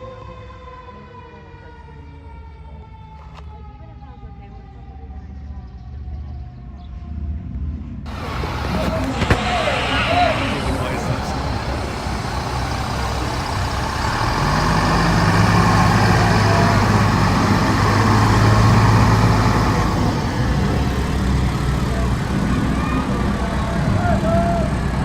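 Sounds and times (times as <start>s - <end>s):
fire truck engine passing: 8.1s - 25.0s.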